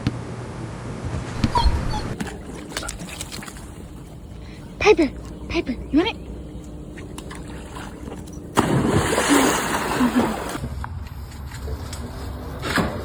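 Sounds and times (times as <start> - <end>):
water splashing: 1.3 - 10.6
loud splash into water: 8.6 - 10.6.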